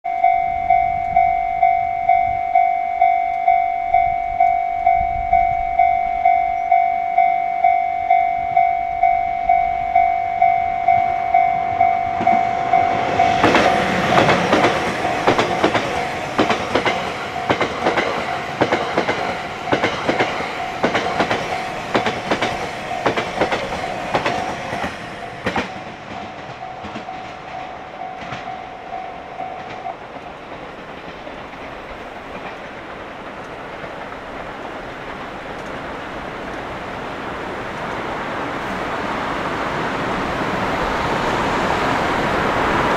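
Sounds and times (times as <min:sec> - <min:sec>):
level-crossing alarm ringing: 0:00.0 - 0:30.1
train wheels clattering over rail joints: 0:12.2 - 0:37.0.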